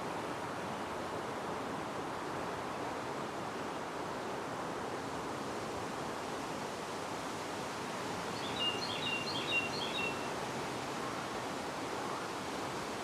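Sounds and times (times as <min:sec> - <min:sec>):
wind: 0:00.0 - 0:13.0
songbird chirping: 0:08.4 - 0:10.3.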